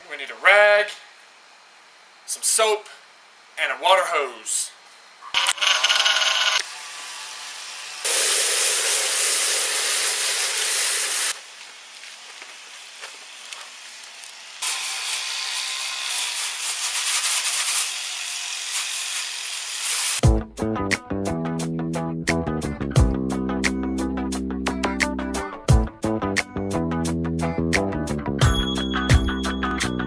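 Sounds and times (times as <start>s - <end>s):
water hose spraying: 7.5s - 20.2s
guitar music: 20.3s - 30.0s.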